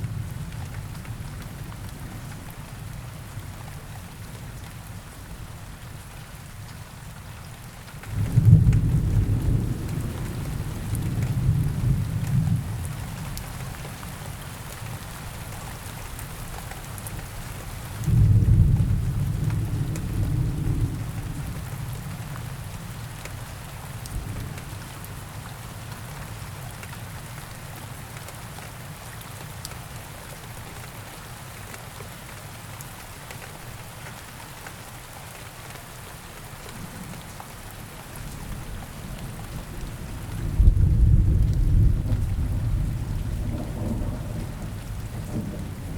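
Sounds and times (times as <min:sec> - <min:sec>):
steady rain falling: 0:00.0 - 0:45.9
thunder rumbling: 0:39.2 - 0:45.9.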